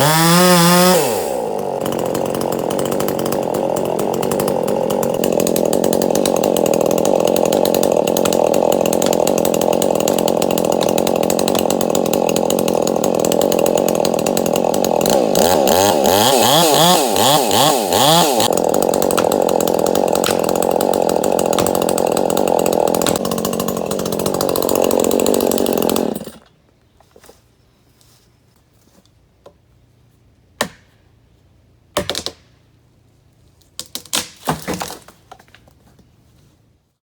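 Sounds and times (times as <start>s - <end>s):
chainsaw running at high revs: 0.0s - 26.4s.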